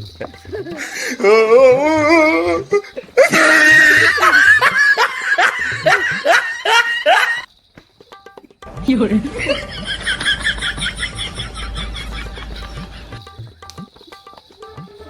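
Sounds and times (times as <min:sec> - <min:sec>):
person laughing loudly: 0:00.0 - 0:07.5, 0:09.1 - 0:13.2.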